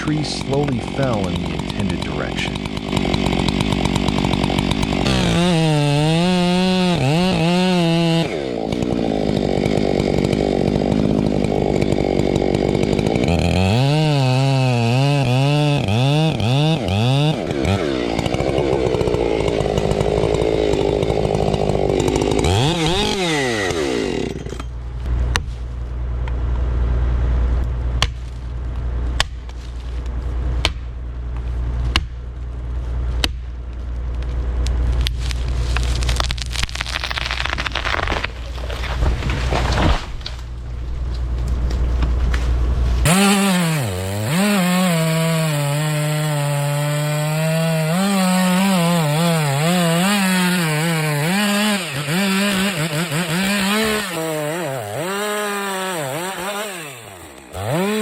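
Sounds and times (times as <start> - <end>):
chainsaw cutting wood: 0.0 - 25.1, 34.5 - 58.0
sharp wood cracks: 0.4 - 25.5, 27.6 - 58.0
low steady rumble: 24.6 - 36.8, 37.6 - 43.1.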